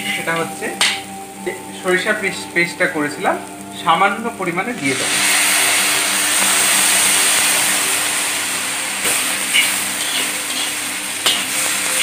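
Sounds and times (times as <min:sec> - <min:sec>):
food sizzling in oil: 0:00.0 - 0:12.0
metal spatula knocking and scraping pan: 0:09.5 - 0:11.6.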